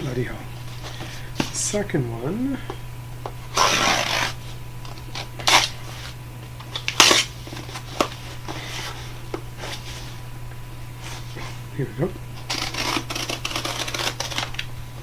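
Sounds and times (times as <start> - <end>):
cardboard box tearing and rustling: 3.5 - 9.0, 12.4 - 14.6.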